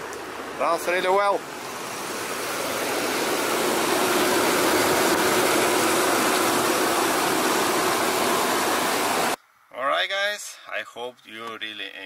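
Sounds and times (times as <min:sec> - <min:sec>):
truck engine idling: 0:00.0 - 0:09.4.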